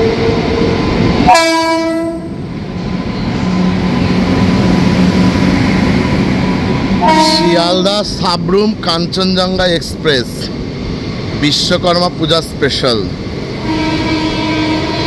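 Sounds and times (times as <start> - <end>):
train rumble and wheel clatter: 0.0 - 15.0
train horn blast: 1.3 - 2.4, 7.0 - 7.9, 13.6 - 15.0.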